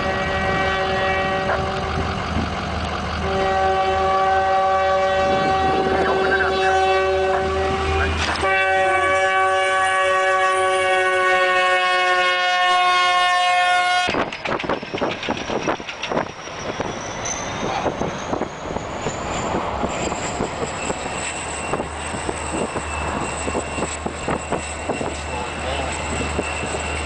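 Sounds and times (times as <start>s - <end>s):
locomotive air horn: 0.0s - 2.0s, 3.2s - 14.2s
train rumble: 0.0s - 27.0s.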